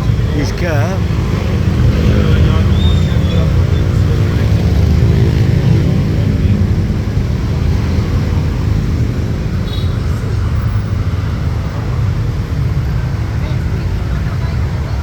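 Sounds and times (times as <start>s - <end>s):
road noise: 0.0s - 15.0s
vehicle engine rumble: 0.0s - 15.0s.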